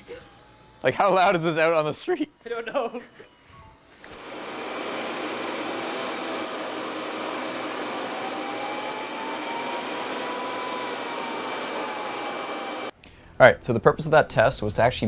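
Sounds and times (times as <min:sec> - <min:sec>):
jet engine roaring with whine: 0:04.1 - 0:12.9.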